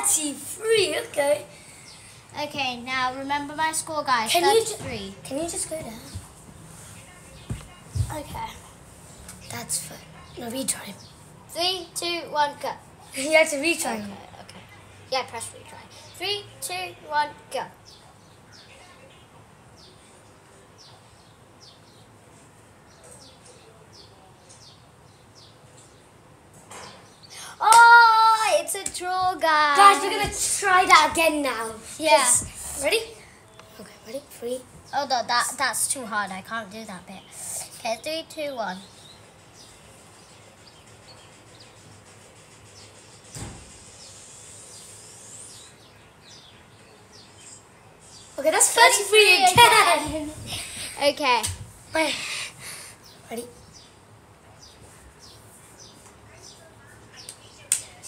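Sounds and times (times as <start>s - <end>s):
faint bird chirps: 37.2s - 48.4s
thump: 43.3s - 43.8s.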